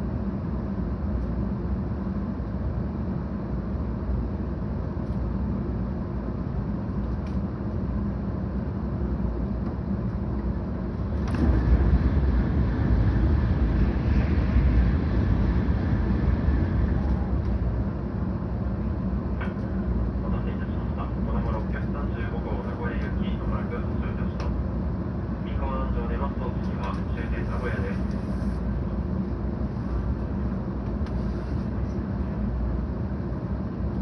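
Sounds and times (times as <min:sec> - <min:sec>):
train wheels rumbling: 0:09.7 - 0:24.6.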